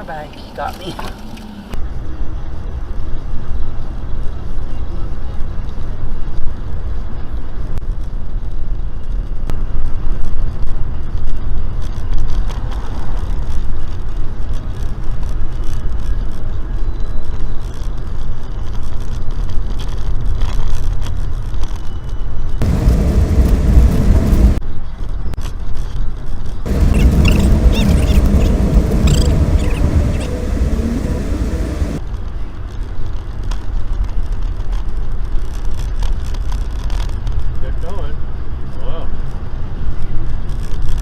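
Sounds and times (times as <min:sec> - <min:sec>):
vehicle road and wind noise: 0:00.0 - 0:41.0.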